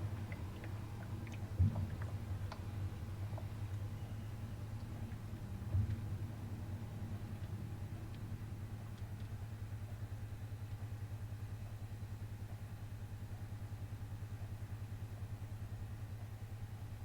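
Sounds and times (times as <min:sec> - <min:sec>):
washing machine running: 0:00.0 - 0:09.7.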